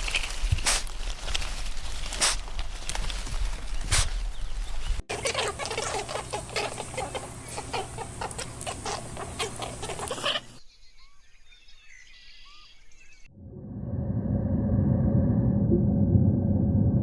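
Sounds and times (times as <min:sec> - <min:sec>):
chickens clucking: 0:05.1 - 0:10.6.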